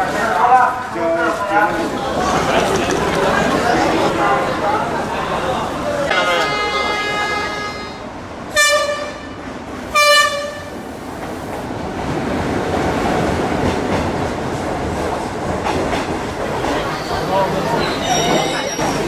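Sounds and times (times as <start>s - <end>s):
train rumbling along platform: 0.0s - 19.0s
train horn blasts: 6.1s - 10.8s.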